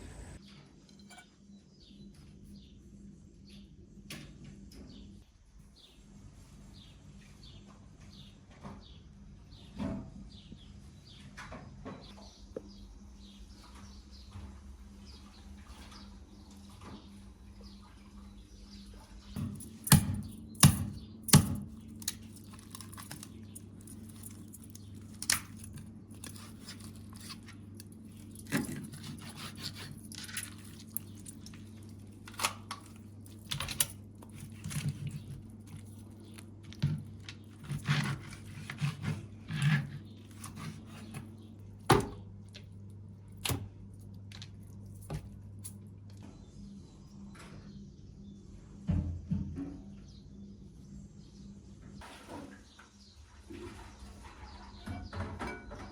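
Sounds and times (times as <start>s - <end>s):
steady low hum: 0.0s - 1.8s.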